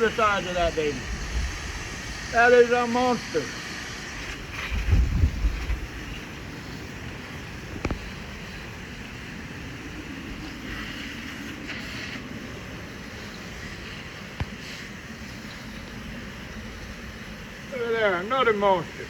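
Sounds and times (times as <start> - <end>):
wind buffeting microphone: 0.0 - 2.8, 4.0 - 17.9
hose spraying water: 0.0 - 19.0.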